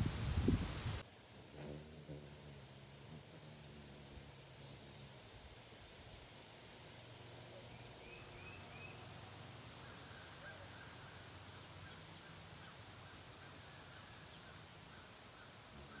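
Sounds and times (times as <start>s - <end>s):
faint low hum: 1.4s - 12.4s
birds chirping: 1.6s - 2.5s
soft repeated bird notes: 1.6s - 2.6s.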